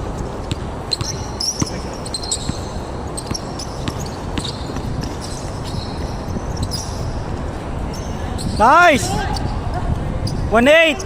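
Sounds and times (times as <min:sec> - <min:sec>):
basketball bouncing: 0:00.4 - 0:05.4
shoes squeaking on floor: 0:00.4 - 0:07.1.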